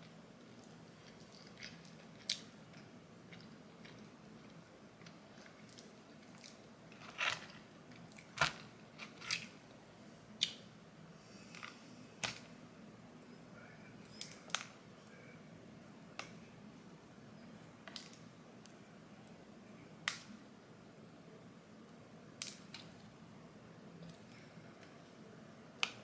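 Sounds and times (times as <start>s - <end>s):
person chewing food: 0.5s - 9.6s
food crunching: 0.5s - 9.7s.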